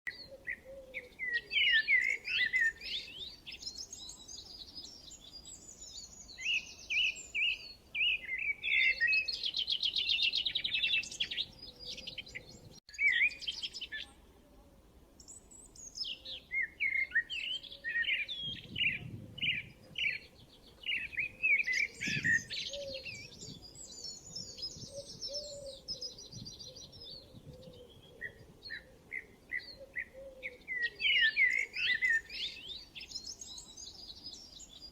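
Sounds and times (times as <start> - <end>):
songbirds chirping and trilling: 0.1 - 34.9.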